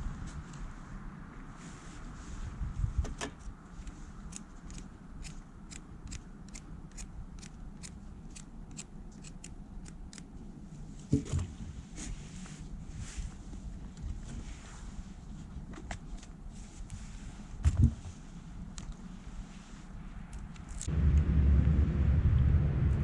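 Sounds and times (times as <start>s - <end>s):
low rumble: 20.2s - 23.0s.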